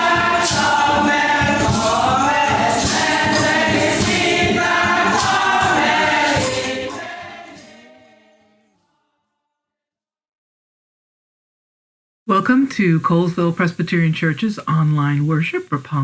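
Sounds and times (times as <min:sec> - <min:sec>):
choir singing with music: 0:00.0 - 0:09.1.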